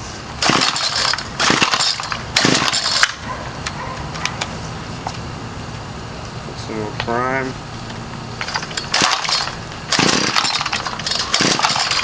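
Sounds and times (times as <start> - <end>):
recoil starter rope pulls: 0.4 - 3.2, 8.4 - 12.0.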